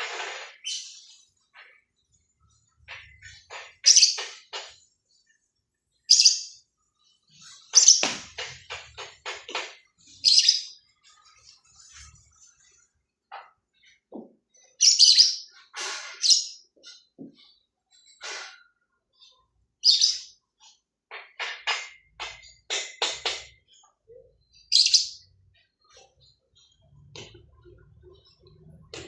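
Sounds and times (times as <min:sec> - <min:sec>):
bird chirping: 0:00.6 - 0:08.2, 0:08.9 - 0:12.8.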